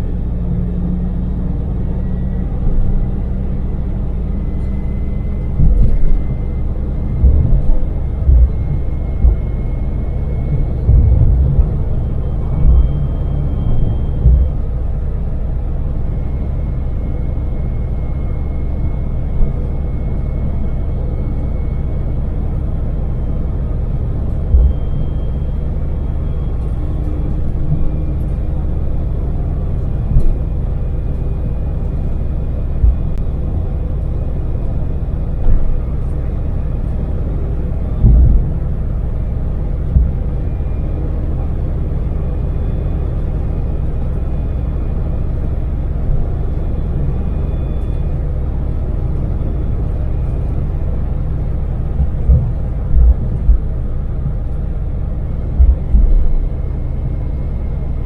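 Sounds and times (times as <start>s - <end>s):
minivan engine droning: 0.0s - 58.0s
road noise: 0.0s - 58.0s
low thumps: 5.4s - 15.1s, 24.4s - 25.0s, 27.1s - 33.6s, 37.9s - 40.6s, 51.8s - 56.6s.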